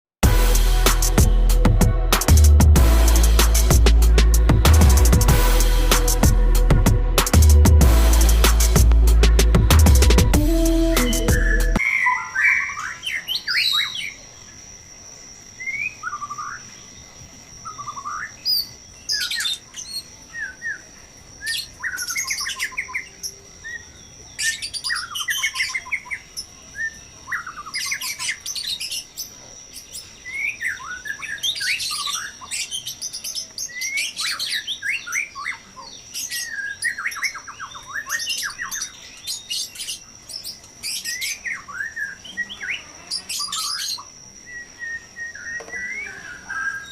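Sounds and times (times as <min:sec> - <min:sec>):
thin steady high tone: 0:08.1 - 0:21.4
birds chirping and calling: 0:08.3 - 0:14.2, 0:17.7 - 0:46.9.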